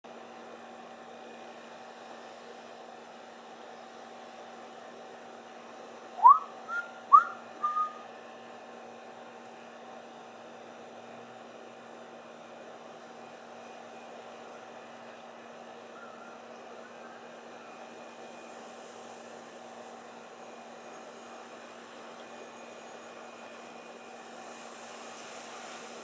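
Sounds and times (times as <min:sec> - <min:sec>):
steady hum: 0:00.1 - 0:26.0
bird whistled call: 0:06.2 - 0:08.0, 0:16.0 - 0:16.4.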